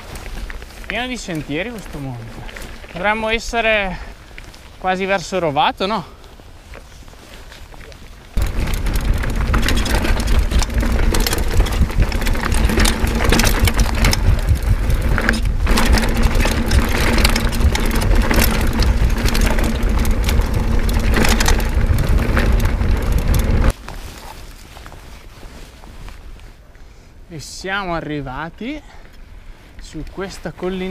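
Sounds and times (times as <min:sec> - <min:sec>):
bike rattling and clattering: 0:00.0 - 0:03.8, 0:08.3 - 0:23.8
tyres crunching over gravel: 0:00.0 - 0:25.3
wind rumble on microphone: 0:08.3 - 0:23.8.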